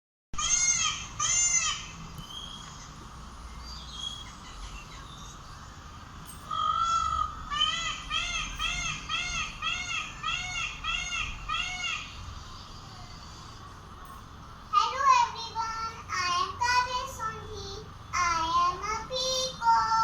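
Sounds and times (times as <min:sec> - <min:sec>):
faint chirps: 0:01.9 - 0:07.5, 0:12.0 - 0:14.7
bird's harsh calls: 0:06.4 - 0:12.3.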